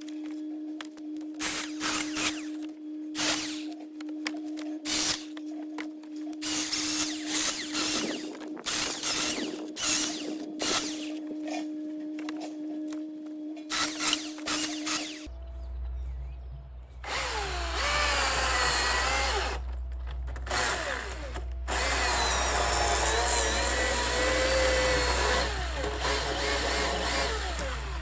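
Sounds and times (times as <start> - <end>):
electric chainsaw whine: 0.0 - 15.4, 17.0 - 28.0
chainsaw cutting wood: 1.4 - 3.8, 4.8 - 5.4, 6.4 - 11.6, 13.7 - 15.3, 17.1 - 28.0.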